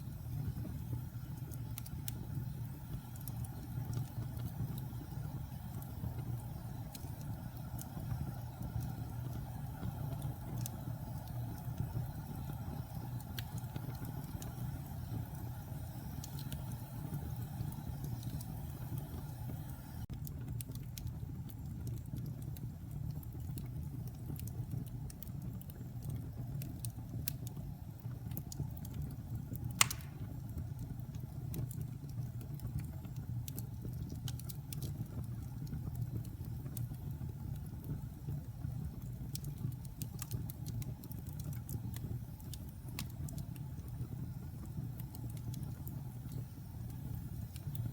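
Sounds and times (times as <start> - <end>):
fire crackling: 0.0 - 47.9
log fire rumbling: 0.0 - 47.9
loud fire pop: 29.8 - 30.4.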